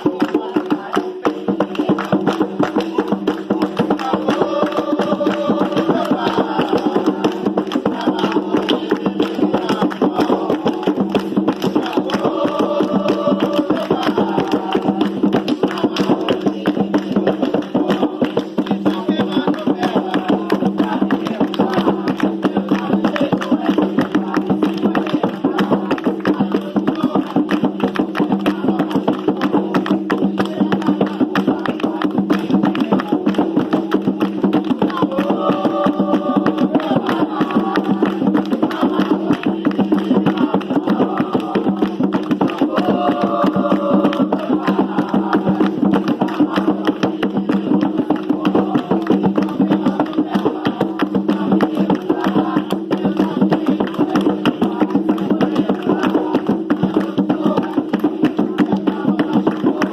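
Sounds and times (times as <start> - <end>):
hand drums beating fast rhythm: 0.0 - 59.9.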